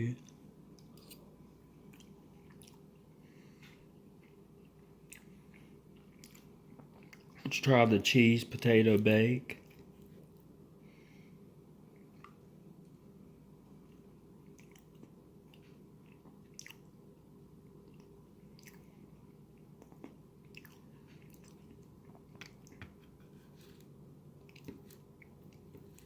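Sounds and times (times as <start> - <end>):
low steady hum: 0.0 - 26.0
person chewing food: 0.2 - 7.4, 11.8 - 12.6, 13.7 - 26.0.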